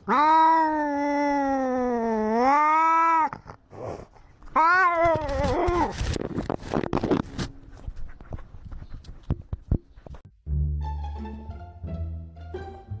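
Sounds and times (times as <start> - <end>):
cat yowling: 0.0 - 3.5, 4.5 - 6.0.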